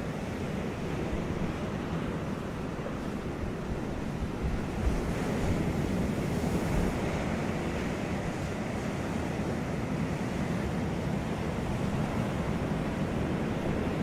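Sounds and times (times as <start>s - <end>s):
ocean waves breaking: 0.0s - 14.0s
wind on microphone: 0.8s - 10.3s.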